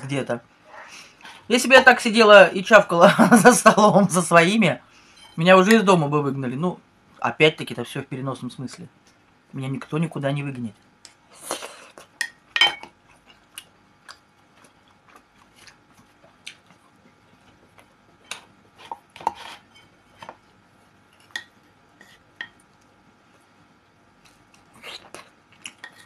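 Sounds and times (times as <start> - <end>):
spoon clinking on plate: 12.2 - 12.9
wet chewing and smacking: 12.9 - 19.4, 24.2 - 26.0.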